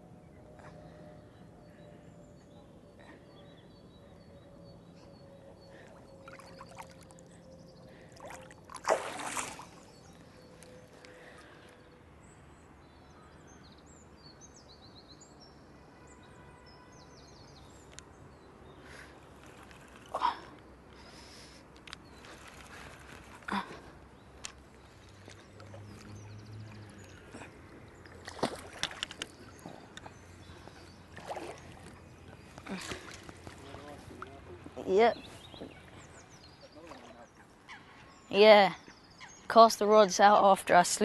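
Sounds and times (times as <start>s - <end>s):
lake water splashing: 5.9s - 7.4s, 8.0s - 10.2s, 22.1s - 37.5s.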